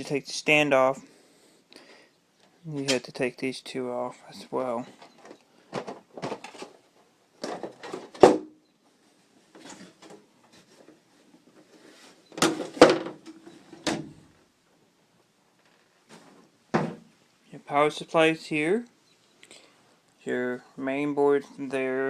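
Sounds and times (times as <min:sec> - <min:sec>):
tv parts knocking and clunking: 0:05.0 - 0:08.6, 0:12.3 - 0:14.2, 0:16.7 - 0:17.1.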